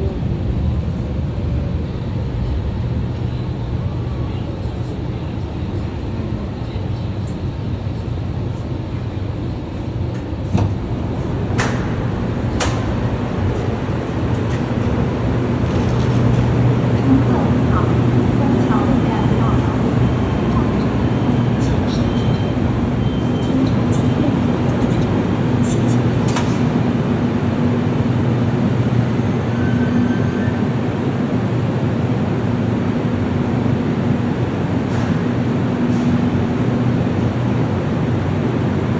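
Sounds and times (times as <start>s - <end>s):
vehicle interior rumble: 0.0s - 28.0s.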